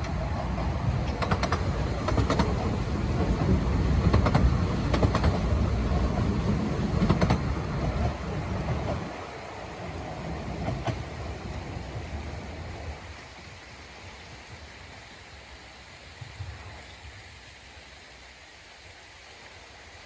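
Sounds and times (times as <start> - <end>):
wheels clicking over rail joints: 0.0 - 12.9
train rumbling past: 0.0 - 17.1.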